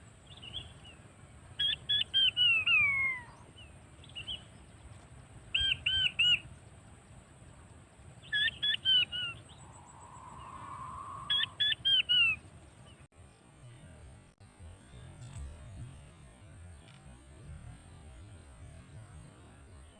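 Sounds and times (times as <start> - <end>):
quail whistling call: 1.6 - 3.4, 5.5 - 6.4, 8.3 - 12.4.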